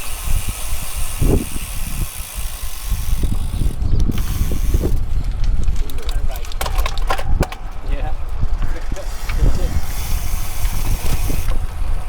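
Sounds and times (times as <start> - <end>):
bicycle freewheel ticking: 0.0 - 5.4, 8.3 - 12.0
road noise: 0.0 - 12.0
wind rumble on microphone: 0.0 - 12.0.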